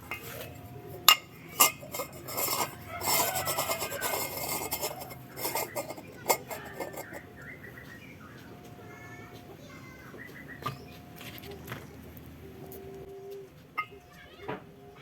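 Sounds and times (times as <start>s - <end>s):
metal parts knocking and clinking: 0.0s - 7.2s
metal scraping and rubbing: 0.0s - 7.3s.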